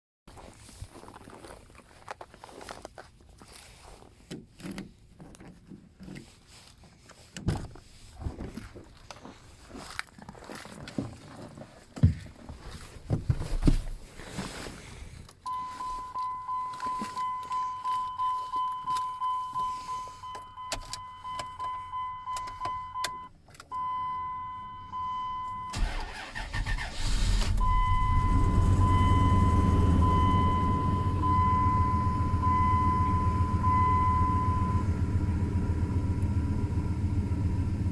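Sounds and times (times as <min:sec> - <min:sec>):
dashboard warning chime dinging: 0:15.5 - 0:26.3, 0:27.6 - 0:37.5
engine cranking and starting: 0:25.7 - 0:37.9
car engine running: 0:26.9 - 0:37.9.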